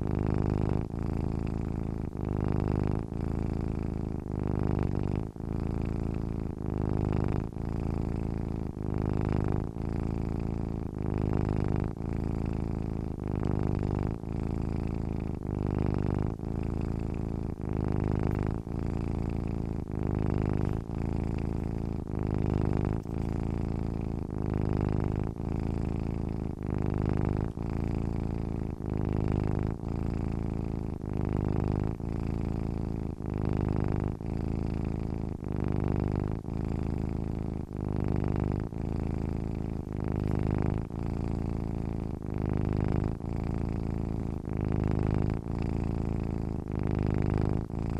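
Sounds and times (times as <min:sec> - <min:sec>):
cat purring: 0:00.0 - 0:47.9.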